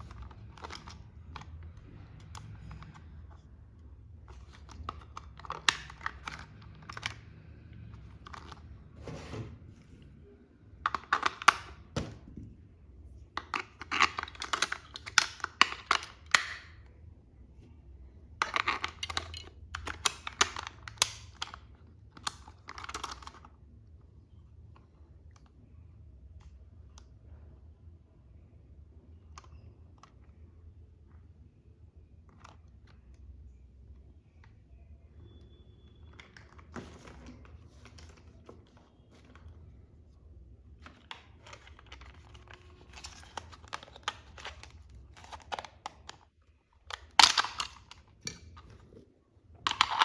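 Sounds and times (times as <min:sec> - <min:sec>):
toy packaging handled and opened: 0:00.0 - 0:09.0, 0:10.8 - 0:12.0, 0:13.2 - 0:16.8, 0:18.4 - 0:23.5, 0:40.7 - 0:49.0, 0:49.6 - 0:50.0.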